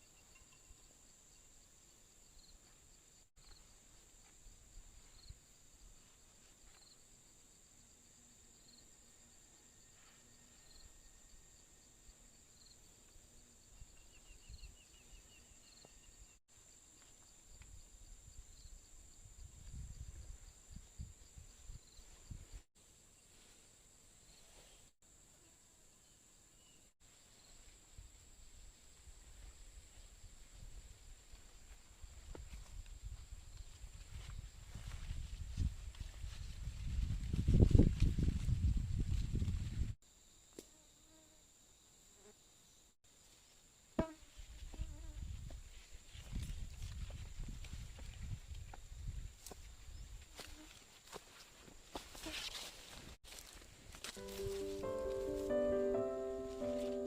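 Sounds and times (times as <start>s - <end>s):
insects droning: 0.0s - 24.4s.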